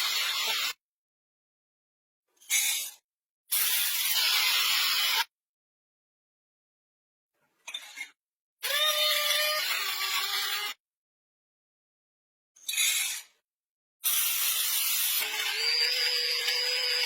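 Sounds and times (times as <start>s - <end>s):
electric blade grinder pulsing: 14.1s - 17.0s.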